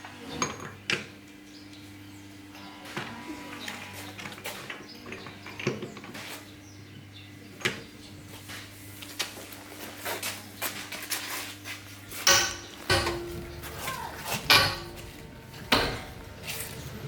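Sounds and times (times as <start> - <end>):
metal tools clinking: 12.2 - 16.9.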